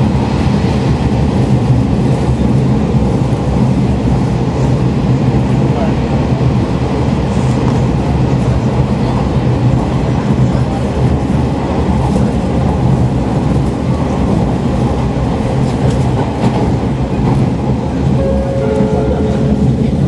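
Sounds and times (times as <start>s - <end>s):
wheels rumbling on rails: 0.0s - 20.0s
low engine drone: 18.1s - 20.0s.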